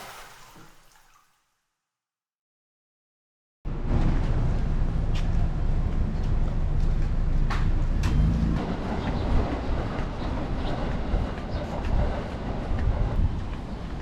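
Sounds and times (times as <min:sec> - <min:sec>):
vehicle rumbling in motion: 0:03.7 - 0:13.8.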